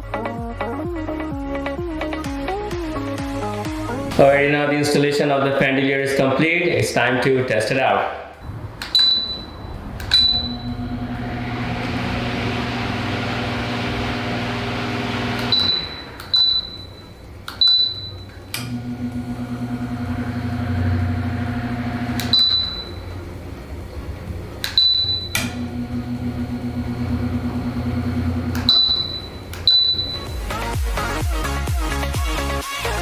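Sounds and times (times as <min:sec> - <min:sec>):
remote receiver beeping: 0:08.4 - 0:11.8, 0:15.4 - 0:19.2, 0:21.5 - 0:23.3, 0:24.6 - 0:30.8
fan motor humming: 0:08.4 - 0:32.2.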